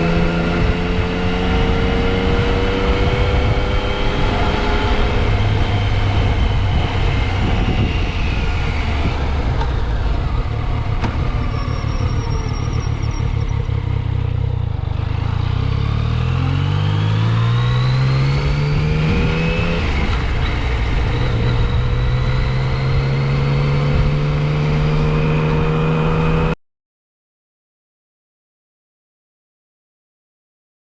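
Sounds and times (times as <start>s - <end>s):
wind rush on microphone: 0.0s - 12.6s, 18.4s - 25.4s
motorcycle engine running: 0.0s - 17.1s.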